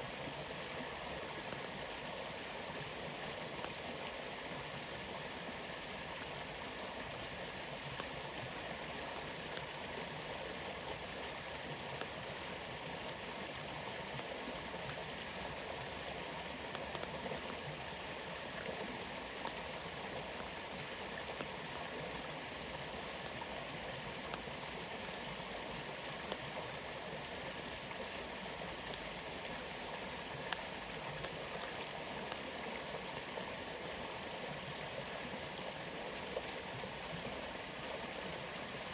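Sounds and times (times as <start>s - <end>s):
flowing water rushing: 0.0s - 38.9s
faint ticks: 1.3s - 2.0s, 3.4s - 4.1s, 7.8s - 10.1s, 11.8s - 13.2s, 16.5s - 22.3s, 24.2s - 24.7s, 26.1s - 26.8s, 29.5s - 33.3s.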